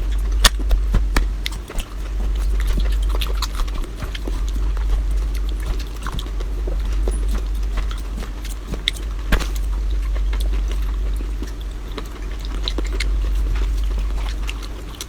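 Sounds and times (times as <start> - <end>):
low hum: 0.0 - 15.0
person chewing food: 0.0 - 15.0.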